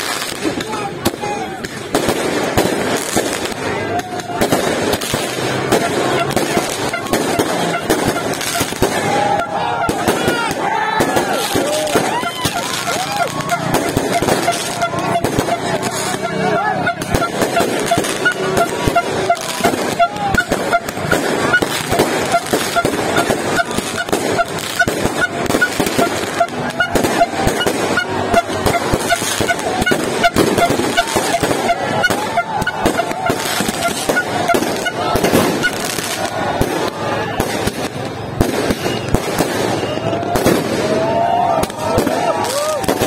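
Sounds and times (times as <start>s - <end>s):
fireworks popping and banging: 0.0s - 43.0s
horn tooting: 3.9s - 37.6s.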